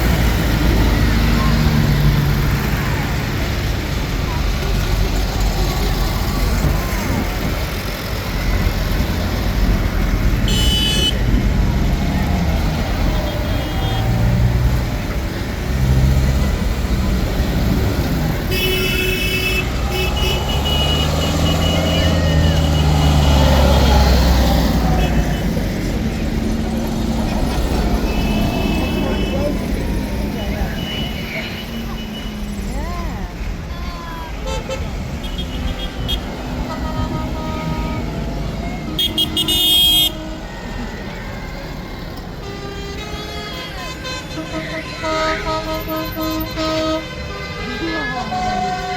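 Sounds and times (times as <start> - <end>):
tractor engines running: 0.0 - 48.9
vehicle horn toots: 10.4 - 11.3, 18.4 - 23.2, 28.0 - 29.5, 38.8 - 40.5, 42.4 - 48.9.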